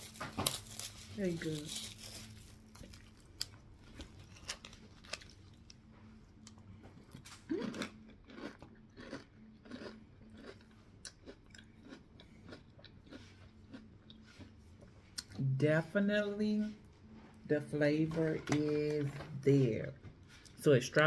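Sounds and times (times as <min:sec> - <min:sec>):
chewing crunchy cereal: 0:00.0 - 0:15.3.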